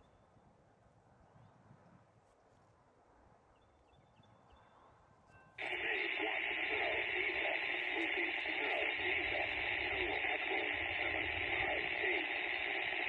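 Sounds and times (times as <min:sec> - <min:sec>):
garbled voice over radio: 0:05.6 - 0:13.0
hissy radio transmission: 0:05.6 - 0:13.0.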